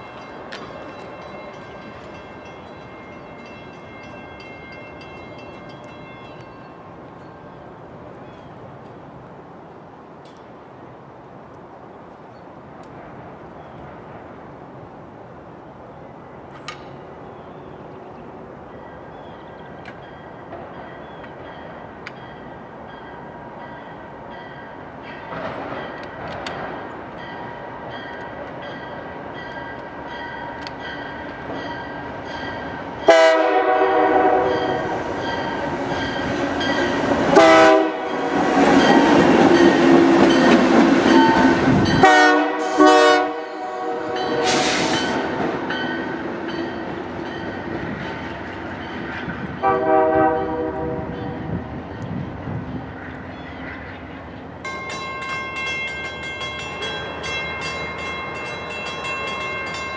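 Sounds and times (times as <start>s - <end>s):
train rattling past: 0.0s - 11.0s, 12.6s - 59.9s
locomotive air horn blasts: 33.1s - 34.9s, 37.3s - 38.4s, 42.0s - 45.0s, 49.6s - 51.4s.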